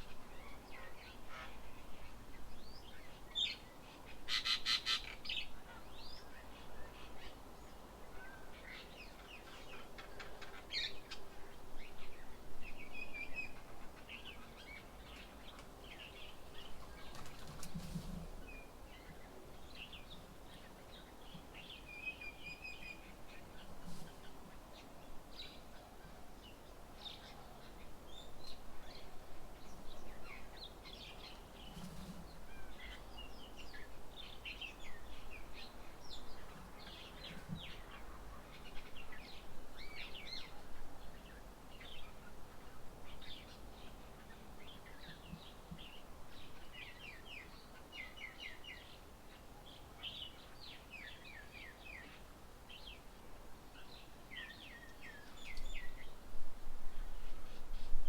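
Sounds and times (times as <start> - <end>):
small birds chirping: 53.7 - 56.2.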